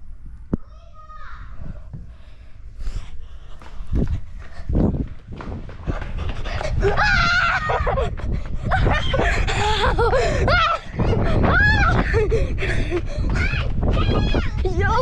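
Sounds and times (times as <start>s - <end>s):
low rumble on microphone: 0.0s - 15.0s
children shrieking and shouting: 6.7s - 15.0s.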